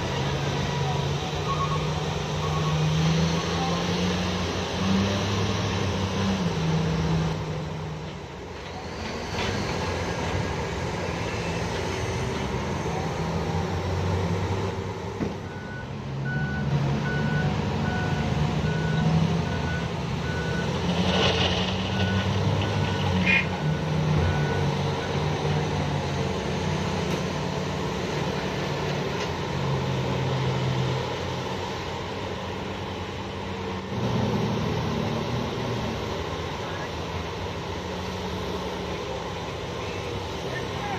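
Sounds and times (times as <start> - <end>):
heavy diesel engines working: 0.0 - 40.9
reversing alarm beeping: 15.4 - 20.8.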